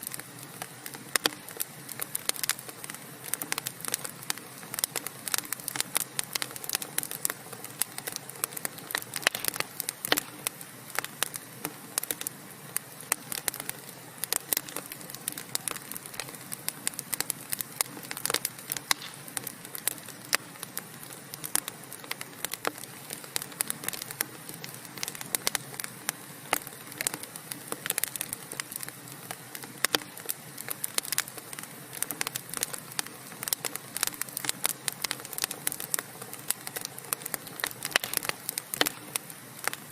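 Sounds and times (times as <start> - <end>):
fire hissing: 0.0 - 39.9
wood fire crackling and popping: 0.0 - 39.9.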